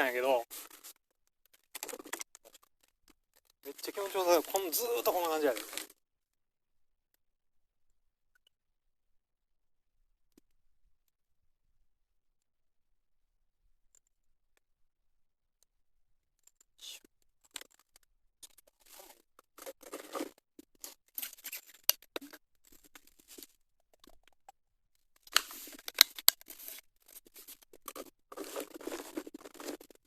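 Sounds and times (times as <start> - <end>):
tyres crunching on loose stones: 3.6 - 5.9.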